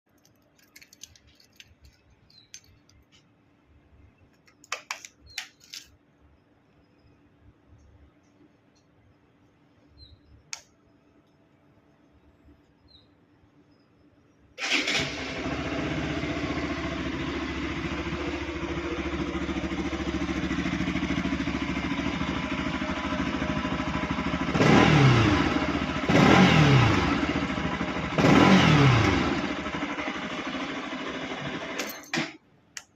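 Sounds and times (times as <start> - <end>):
motorcycle engine revving: 14.6 - 31.8
motorcycle engine starting and idling: 14.6 - 32.4.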